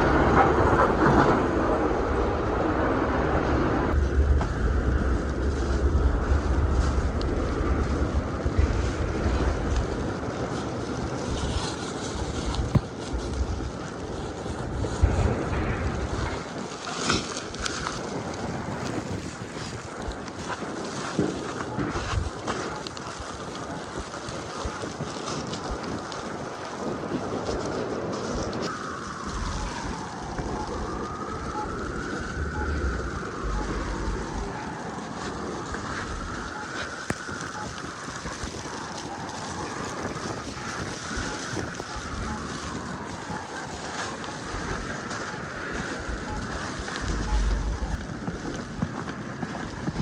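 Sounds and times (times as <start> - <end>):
city noise hiss: 0.0 - 50.0
wind buffeting microphone: 0.0 - 50.0
faint rising and falling tone: 31.7 - 34.6, 47.0 - 48.0.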